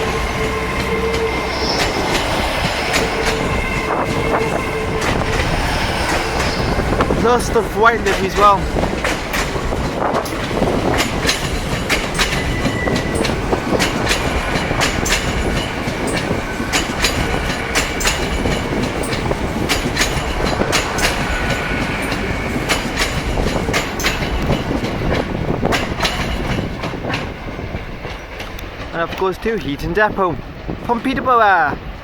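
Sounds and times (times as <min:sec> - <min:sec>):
rail noise: 0:00.0 - 0:32.0
train wheels clacking on rails: 0:00.0 - 0:32.0
faint wheel squeal: 0:00.4 - 0:03.5, 0:04.5 - 0:07.2.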